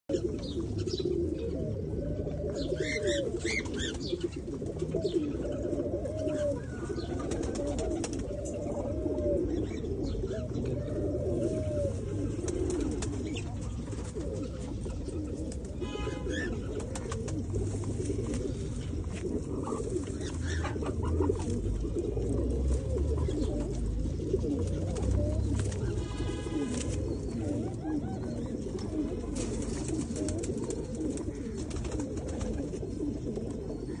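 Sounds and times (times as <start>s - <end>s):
pigeons cooing: 0.1s - 34.0s.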